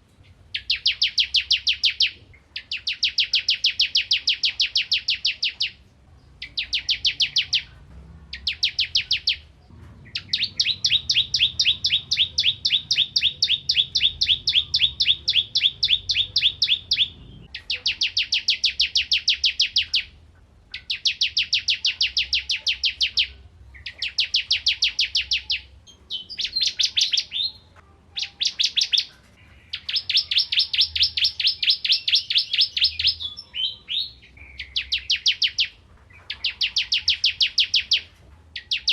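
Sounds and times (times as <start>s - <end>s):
bird singing rapid high notes: 0.5s - 5.8s, 6.4s - 7.7s, 8.3s - 38.9s.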